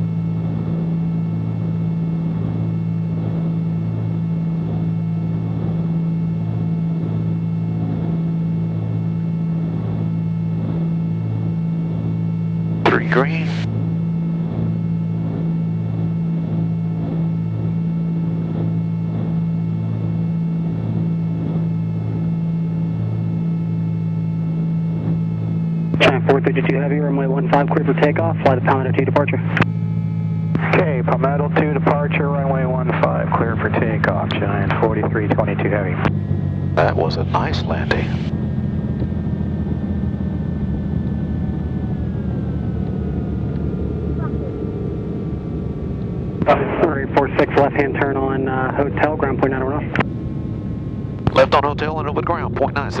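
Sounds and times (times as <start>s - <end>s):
aircraft engines droning: 0.0s - 53.0s
faint falling whine: 0.0s - 53.0s.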